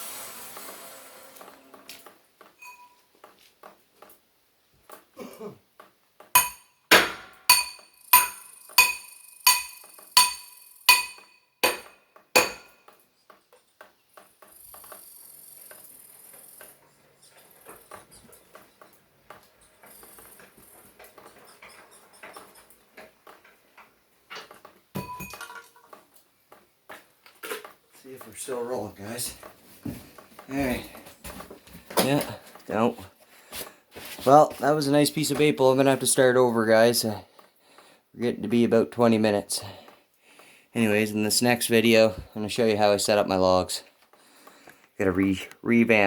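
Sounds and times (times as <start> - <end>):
metal struck ringing: 6.4 - 11.8.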